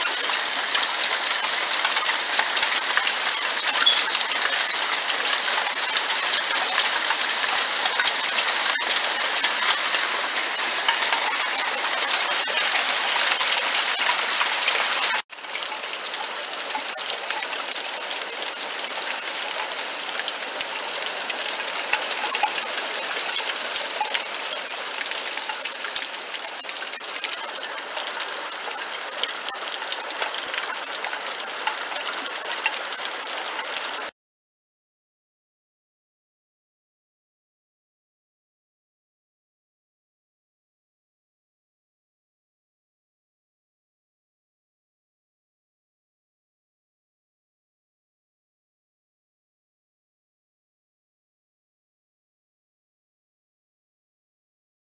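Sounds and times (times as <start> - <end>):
downpour hiss: 0.0 - 34.1
hailstones clattering: 0.0 - 34.1.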